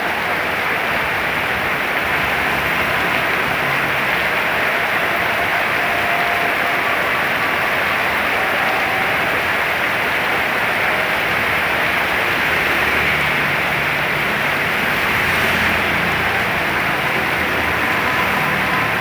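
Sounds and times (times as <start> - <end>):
vehicle engine rumble: 0.0 - 5.3, 9.2 - 19.0
heavy rain: 0.0 - 19.0
wind: 0.0 - 19.0.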